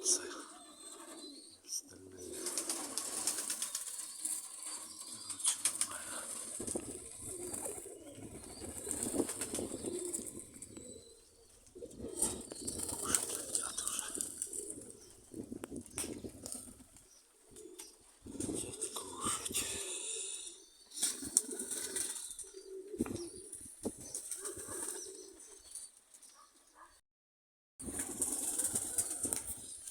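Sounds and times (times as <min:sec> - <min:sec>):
pigeons cooing: 0:00.0 - 0:27.0, 0:27.9 - 0:29.9
wings flapping: 0:02.2 - 0:18.9, 0:20.9 - 0:22.4, 0:23.0 - 0:25.0, 0:27.8 - 0:29.9.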